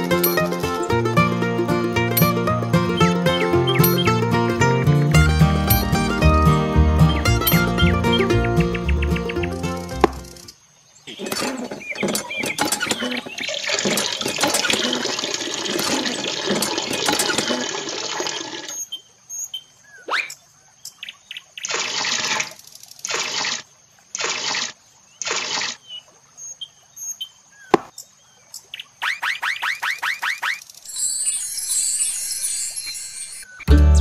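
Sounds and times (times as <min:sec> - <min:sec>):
water pouring and splashing: 0:11.2 - 0:18.8
short gushes of water: 0:12.8 - 0:18.8.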